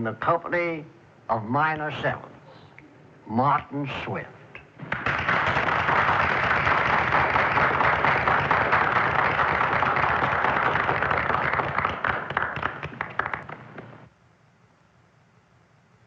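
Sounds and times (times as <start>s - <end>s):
audience applauding: 4.8s - 14.1s.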